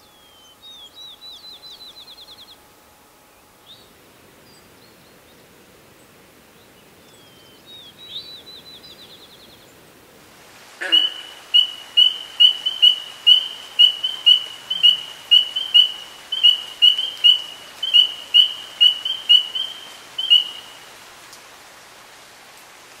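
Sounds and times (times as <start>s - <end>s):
bird calling sharp high notes: 10.8s - 20.8s.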